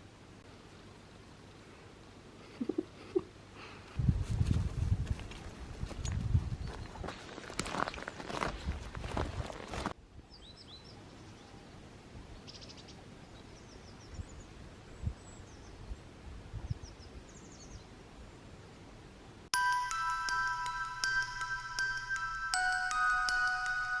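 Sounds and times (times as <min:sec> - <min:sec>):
music with mallet notes: 0:19.6 - 0:24.0.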